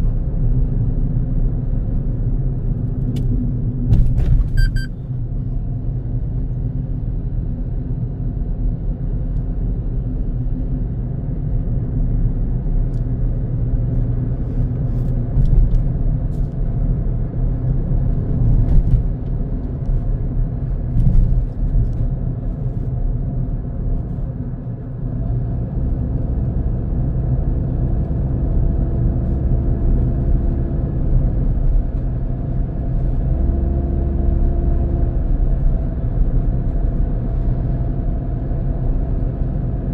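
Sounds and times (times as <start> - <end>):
car engine and tyre rumble: 0.0 - 39.9
steady engine tone: 4.4 - 5.5.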